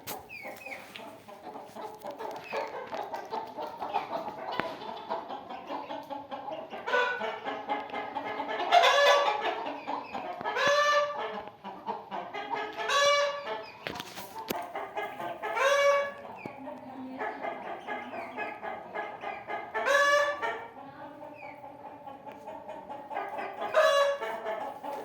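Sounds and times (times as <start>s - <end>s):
chickens clucking: 0.0s - 25.0s
chicken drawn-out call: 1.8s - 11.4s, 12.4s - 13.8s, 14.7s - 16.2s, 19.3s - 20.7s, 23.2s - 25.0s.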